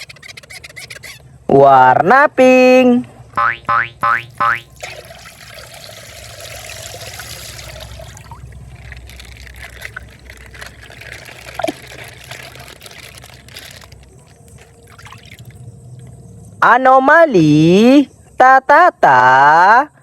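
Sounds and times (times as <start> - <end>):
brief squeak: 0.0 - 1.3
water pouring from plastic bag: 4.7 - 15.6.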